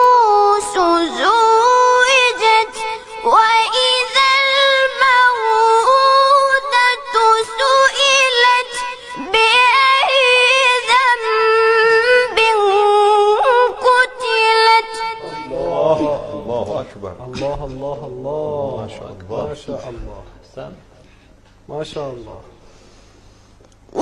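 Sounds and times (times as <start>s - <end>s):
high-pitched voice reciting melodically: 0.0s - 16.6s.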